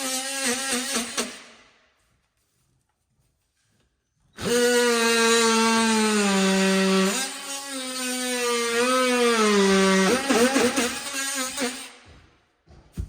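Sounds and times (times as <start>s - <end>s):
power tool cutting wood: 0.0s - 1.5s, 4.4s - 12.1s.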